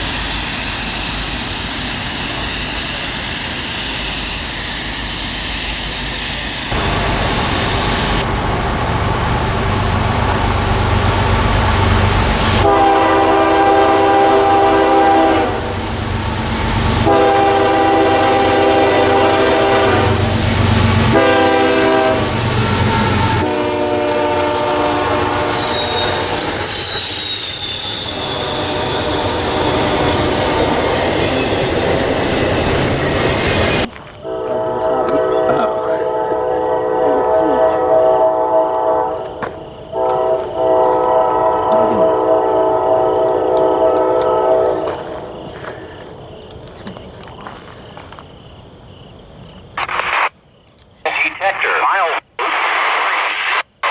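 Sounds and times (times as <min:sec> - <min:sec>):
high steady squeal: 0:00.0 - 0:12.7, 0:24.6 - 0:33.9
train wheels rolling: 0:00.0 - 0:51.0
train rumbling: 0:00.0 - 0:53.9
locomotive air horn blasts: 0:12.4 - 0:15.7, 0:16.9 - 0:20.3, 0:21.0 - 0:26.4, 0:34.2 - 0:39.3, 0:39.9 - 0:45.0.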